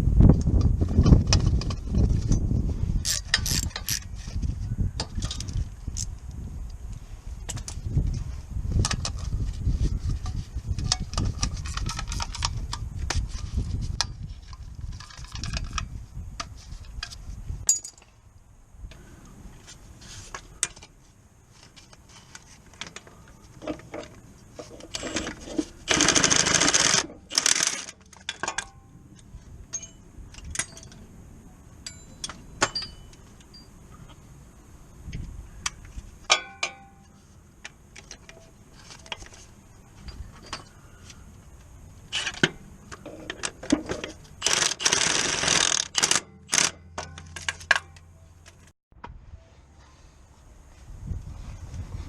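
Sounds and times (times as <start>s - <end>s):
metal tools clinking: 16.9s - 18.1s, 29.7s - 31.1s, 31.8s - 33.8s, 40.0s - 40.9s, 42.1s - 48.7s
loud bursts of mechanical noise: 24.9s - 27.9s, 44.4s - 46.8s.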